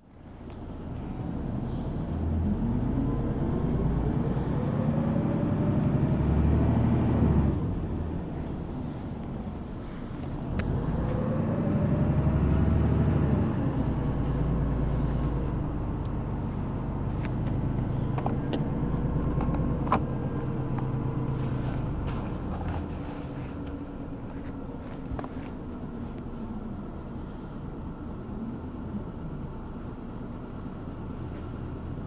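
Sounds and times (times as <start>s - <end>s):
bus engine accelerating: 0.0s - 32.0s
bus body rattling and clicking: 6.8s - 26.4s.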